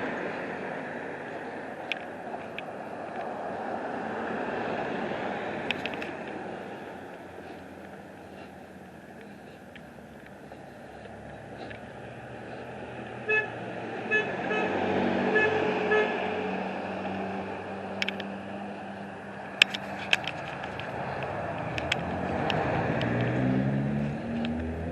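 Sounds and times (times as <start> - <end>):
motor vehicle rumble: 0.0 - 24.9
sharp clicks: 5.6 - 6.4, 17.9 - 18.4, 19.4 - 23.4
short horn toots: 13.2 - 16.2.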